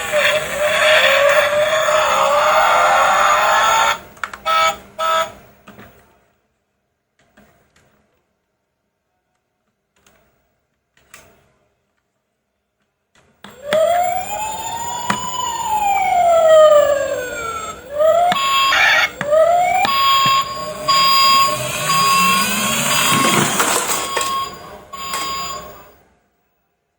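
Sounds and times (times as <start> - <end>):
siren wailing and whooping: 0.0 - 5.2, 13.6 - 25.9
steady beeps: 18.0 - 25.9.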